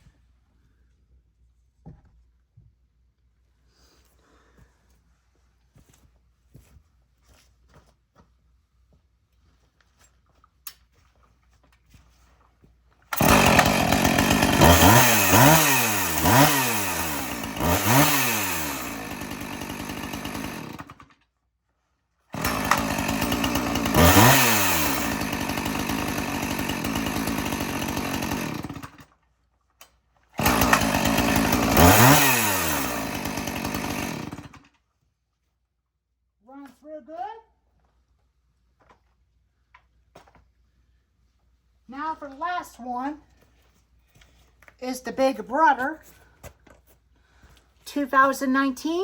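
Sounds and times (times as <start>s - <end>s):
chainsaw engine revving: 13.1s - 21.1s, 22.4s - 29.0s, 30.4s - 34.7s.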